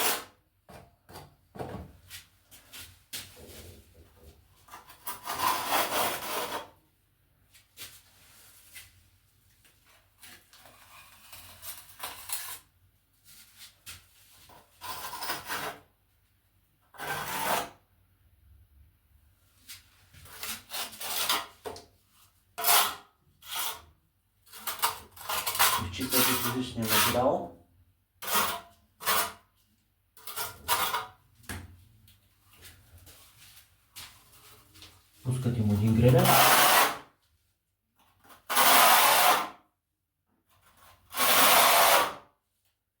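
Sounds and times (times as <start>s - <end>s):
trowel scraping adhesive on tiles: 4.7s - 6.8s, 10.5s - 12.7s, 14.4s - 15.9s, 16.9s - 17.8s, 20.3s - 21.7s, 22.6s - 27.3s, 28.2s - 29.5s, 30.2s - 31.2s, 35.8s - 37.1s, 38.2s - 39.6s, 40.5s - 42.2s.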